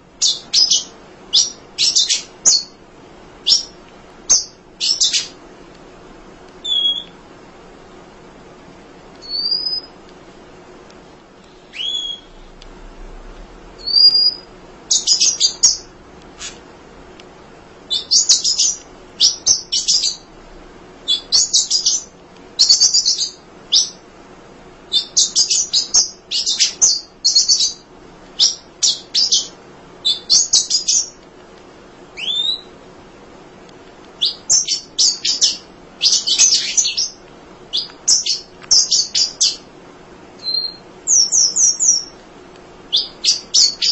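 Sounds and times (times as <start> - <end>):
bird chattering high chirps: 0.2 - 2.7, 3.5 - 5.4, 6.6 - 7.1, 11.7 - 12.4
slurred whistle notes: 11.7 - 12.5.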